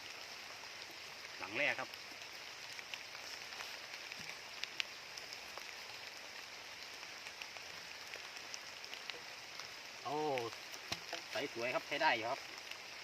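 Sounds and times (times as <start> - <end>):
faint high hiss: 0.0 - 13.0
drip-like clicks: 2.6 - 5.8, 6.8 - 11.5.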